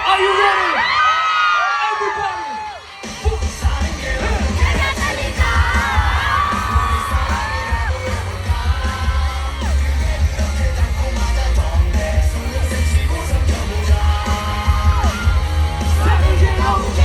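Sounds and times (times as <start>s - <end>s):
crowd yelling and singing: 0.0s - 17.0s
hip-hop music over a pa: 2.2s - 17.0s.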